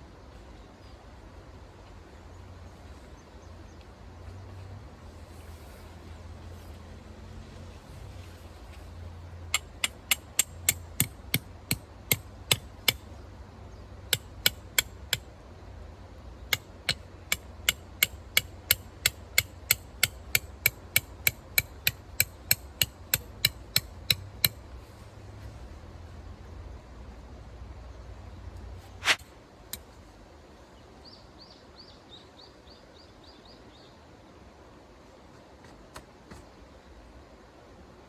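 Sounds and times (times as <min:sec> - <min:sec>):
hammer striking metal peg: 0:09.5 - 0:13.0, 0:14.1 - 0:15.3, 0:16.5 - 0:24.6.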